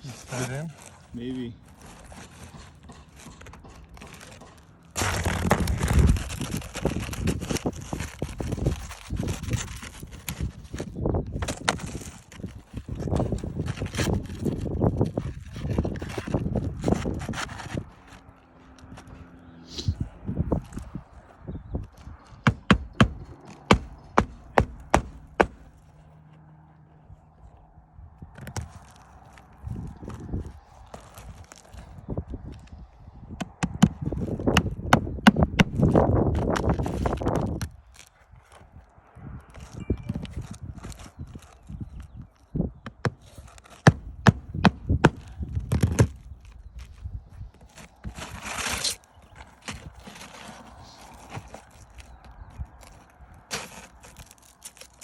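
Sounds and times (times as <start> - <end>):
hammer striking nail: 22.4 - 25.7.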